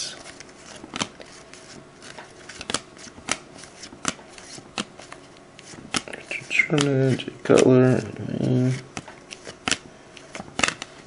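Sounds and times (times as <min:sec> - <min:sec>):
trading cards rustling: 0:00.2 - 0:11.0
cards clicking off stack: 0:02.0 - 0:08.1, 0:08.9 - 0:10.9.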